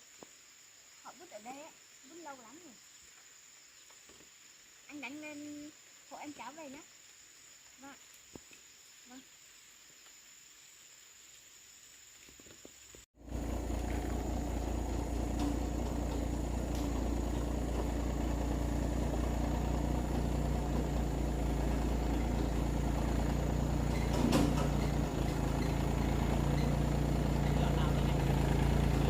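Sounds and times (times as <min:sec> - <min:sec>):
vehicle engine running: 0:13.2 - 0:29.0.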